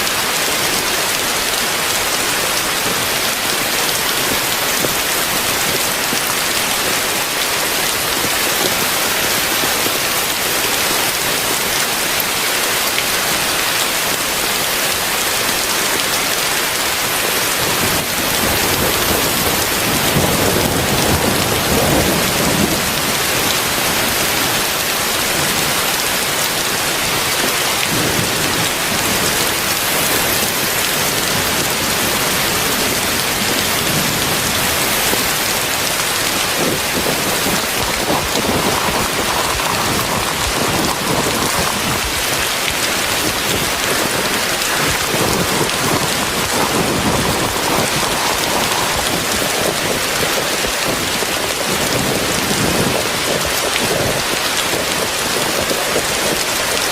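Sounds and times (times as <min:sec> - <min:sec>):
heavy rain: 0:00.0 - 0:56.9
thunder rumble: 0:17.4 - 0:56.4.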